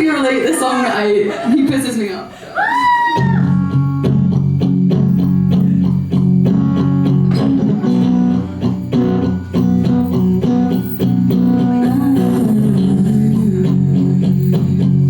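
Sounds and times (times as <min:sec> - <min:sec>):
guitar plucking chords: 0:03.2 - 0:15.0.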